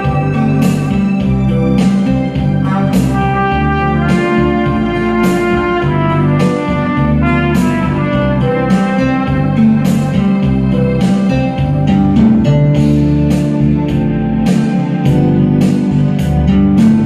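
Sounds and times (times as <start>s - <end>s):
backing track of guitar and drums: 0.0s - 17.0s
trumpet melody: 2.6s - 11.0s.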